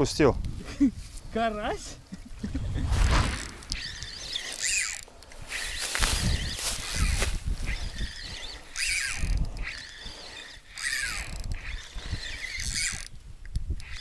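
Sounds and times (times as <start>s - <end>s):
wind rumble on microphone: 2.0s - 4.5s, 5.4s - 10.3s, 11.0s - 14.0s
wild birds calling: 3.2s - 13.0s.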